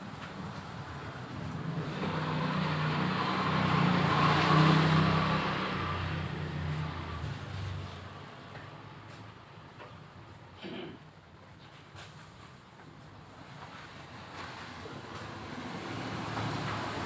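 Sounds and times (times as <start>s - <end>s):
vehicle passing by: 0.4s - 8.4s, 14.1s - 17.0s.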